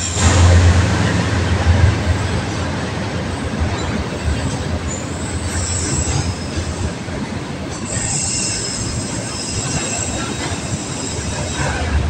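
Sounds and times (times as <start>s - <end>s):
freight train wheels rumbling: 0.0s - 12.0s
high wheel squeal: 3.8s - 6.8s, 7.7s - 12.0s.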